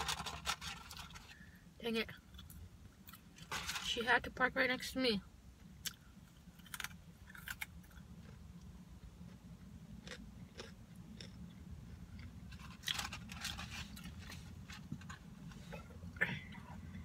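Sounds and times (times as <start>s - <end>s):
steady low hum: 0.0s - 17.0s
chewing crunchy fries: 5.8s - 14.4s.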